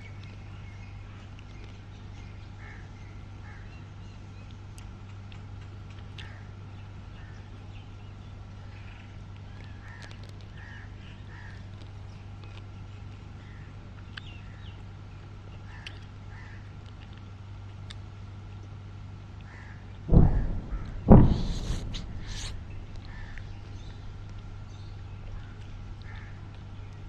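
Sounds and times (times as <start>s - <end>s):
steady low hum: 0.0s - 27.0s
crow-like bird caws: 15.7s - 16.7s, 19.4s - 21.0s, 26.0s - 26.4s.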